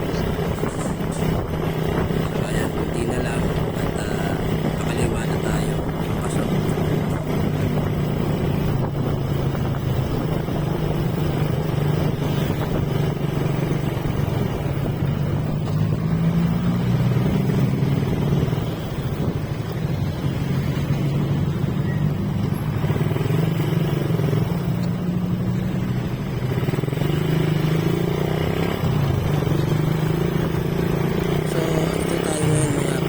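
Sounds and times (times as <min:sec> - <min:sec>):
wind noise on microphone: 0:00.0 - 0:24.6
motorcycle engine running: 0:00.0 - 0:33.0.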